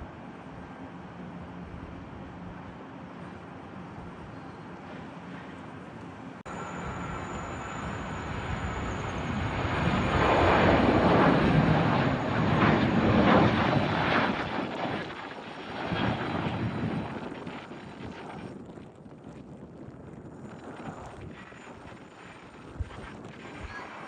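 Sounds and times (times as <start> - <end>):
airplane passing close by: 0.0 - 18.6.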